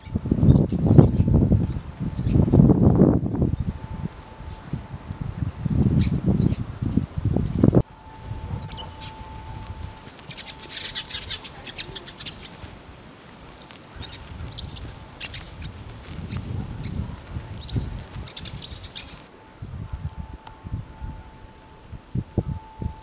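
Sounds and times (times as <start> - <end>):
small birds chirping: 0.0 - 4.8, 5.8 - 19.3
wind rumbling on microphone: 0.0 - 23.0.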